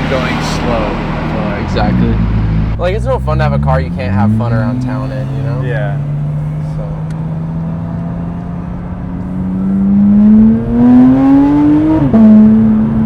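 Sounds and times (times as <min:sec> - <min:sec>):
gear shift pitch drop: 0:00.0 - 0:13.0
sports car engine accelerating: 0:00.0 - 0:13.0.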